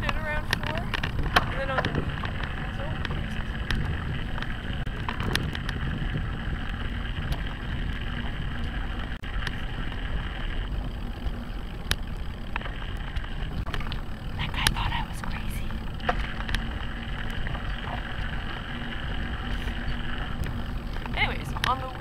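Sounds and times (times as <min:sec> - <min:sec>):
bicycle road rumble: 0:00.0 - 0:22.0
wind: 0:00.0 - 0:22.0
sharp ticks: 0:10.8 - 0:22.0.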